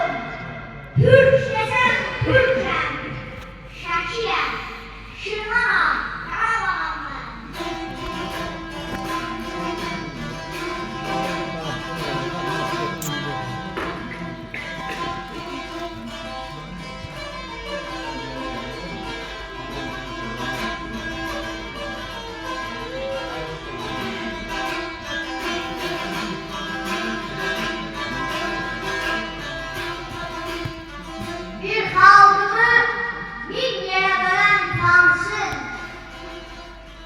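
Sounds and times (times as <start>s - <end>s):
plucked lute notes: 6.2s - 37.0s.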